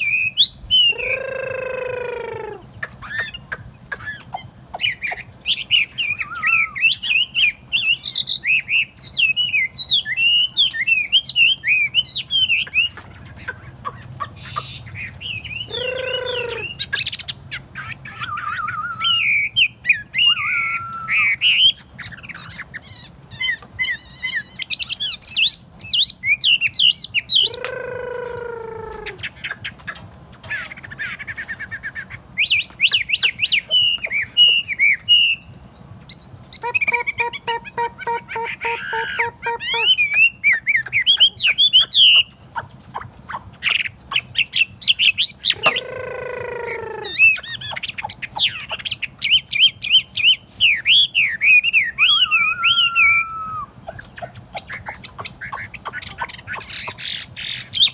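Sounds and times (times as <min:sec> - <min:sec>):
bird warbling: 0:00.0 - 0:08.6, 0:12.3 - 0:19.6, 0:26.8 - 0:35.4, 0:36.6 - 0:57.9.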